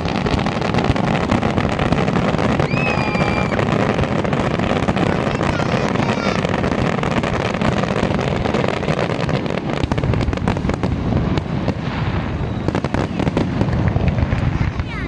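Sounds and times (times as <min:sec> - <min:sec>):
fireworks cracks and bangs: 0:00.0 - 0:15.0.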